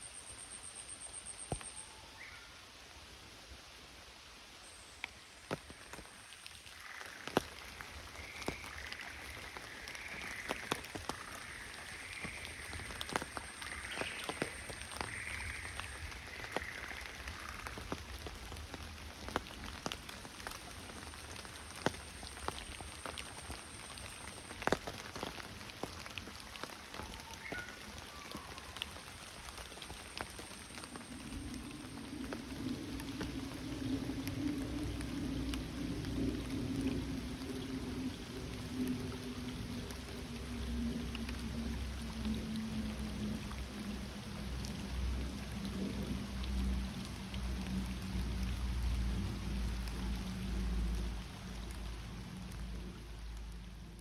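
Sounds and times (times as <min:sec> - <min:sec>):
large raindrops dripping: 0:00.0 - 0:54.0
steady rain: 0:00.0 - 0:54.0
frogs calling: 0:06.6 - 0:18.0.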